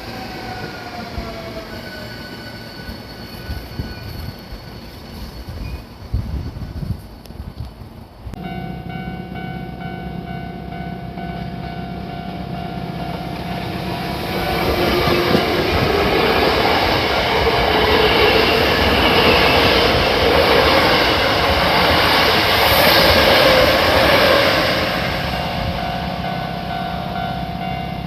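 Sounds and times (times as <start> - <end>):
train whine: 0.0 - 28.0
electric train running: 8.4 - 28.0.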